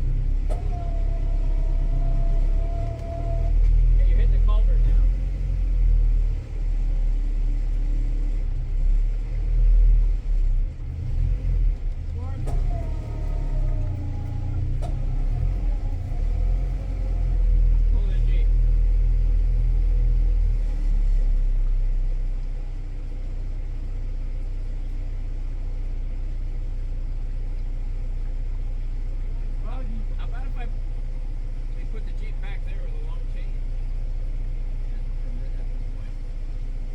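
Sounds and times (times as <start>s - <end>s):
tractor engine rumbling: 0.0s - 36.9s.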